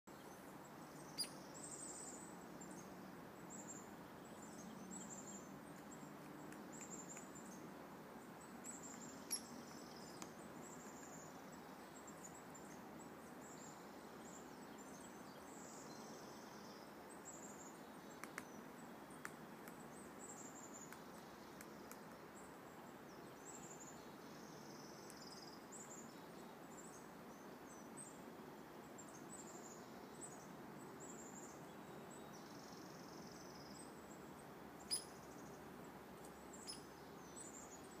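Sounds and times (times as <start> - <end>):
high-pitched bird calls: 1.1 - 1.4, 9.2 - 9.6, 34.9 - 35.2.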